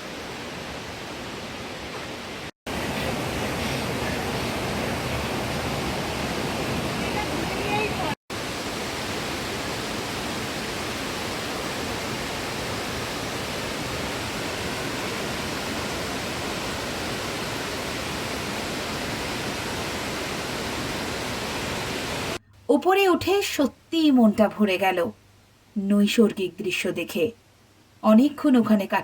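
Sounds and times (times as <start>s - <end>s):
waterfall crashing: 1.8s - 22.4s.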